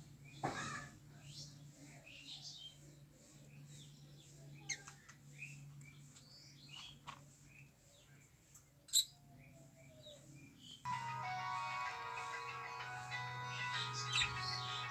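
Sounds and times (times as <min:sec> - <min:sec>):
lovebird chirping: 0:10.9 - 0:14.9.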